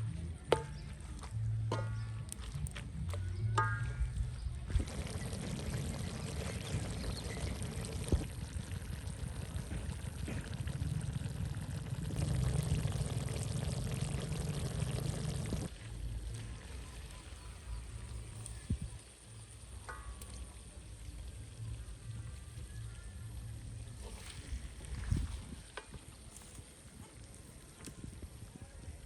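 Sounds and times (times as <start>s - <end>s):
water pouring: 4.7s - 16.7s.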